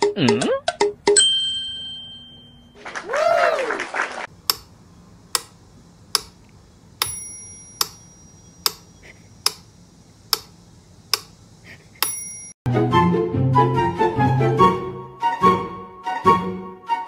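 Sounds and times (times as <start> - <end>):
metronome ticking: 5.3 - 9.6.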